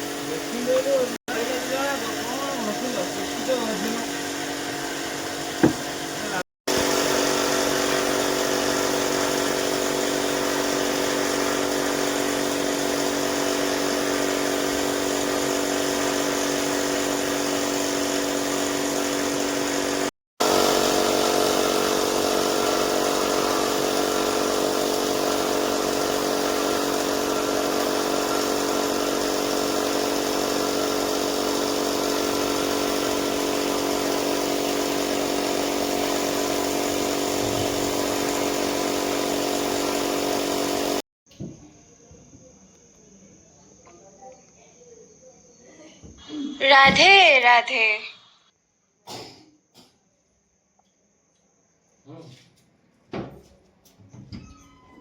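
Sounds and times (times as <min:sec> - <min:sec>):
electric power tool whining: 0:00.0 - 0:41.0.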